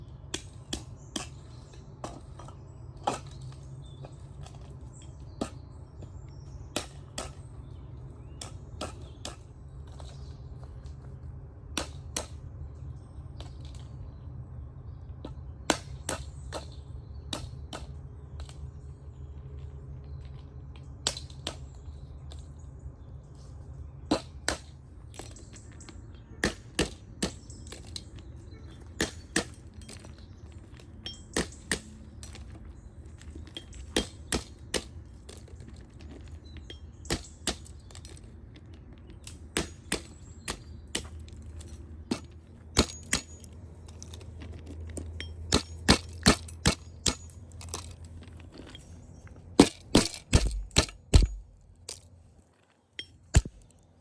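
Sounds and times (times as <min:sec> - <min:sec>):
low steady rumble: 0:00.0 - 0:54.0
sharp knocks and clicks: 0:49.6 - 0:51.5, 0:53.0 - 0:53.8.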